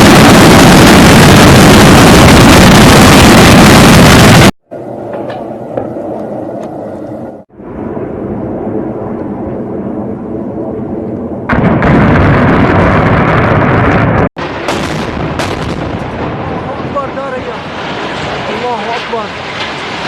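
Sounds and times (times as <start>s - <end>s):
loud explosion blast: 0.0s - 4.6s, 11.4s - 20.0s
low rumbling: 0.0s - 20.0s.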